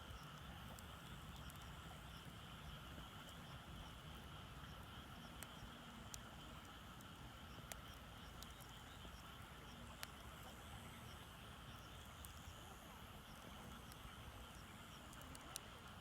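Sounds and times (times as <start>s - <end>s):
faint steady background noise: 0.0s - 16.0s
wood fire crackling and popping: 15.0s - 16.0s.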